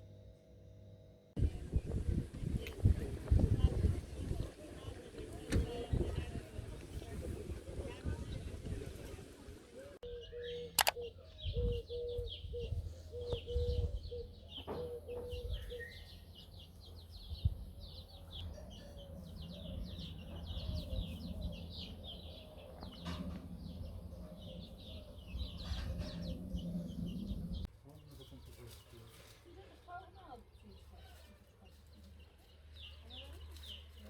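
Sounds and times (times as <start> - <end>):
small birds chirping: 1.4 - 34.0
low pulsing hum: 18.8 - 27.7.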